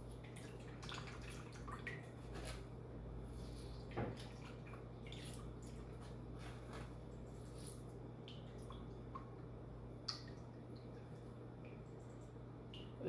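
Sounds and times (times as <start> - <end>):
wet squelching and dripping: 3.4 - 6.2.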